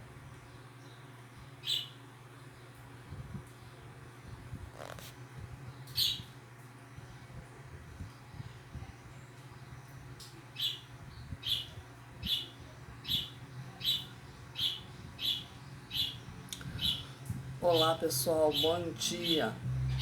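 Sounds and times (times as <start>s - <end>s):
faint low hum: 0.0s - 20.0s
bird chirping: 1.6s - 2.0s, 5.9s - 6.3s, 10.6s - 17.1s.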